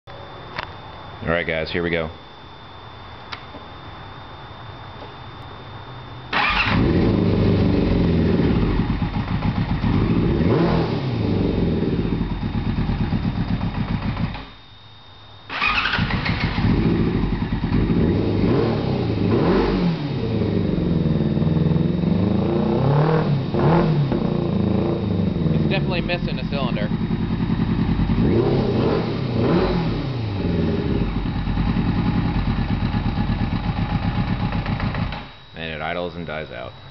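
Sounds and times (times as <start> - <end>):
motorcycle engine running roughly: 6.4 - 14.5, 15.6 - 19.3, 20.2 - 35.4.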